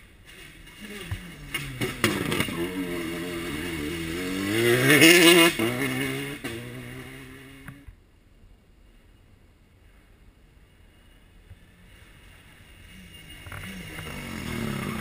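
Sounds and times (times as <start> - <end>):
rally car engine accelerating: 0.4 - 7.9, 12.9 - 15.0.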